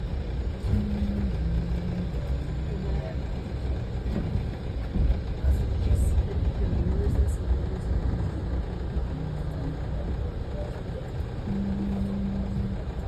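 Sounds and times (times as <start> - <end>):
train running rumble: 0.0 - 13.0.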